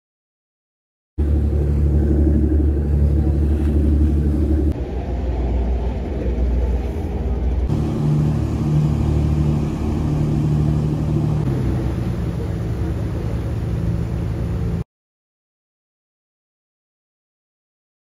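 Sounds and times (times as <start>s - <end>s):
vehicle engine humming: 1.2s - 14.8s.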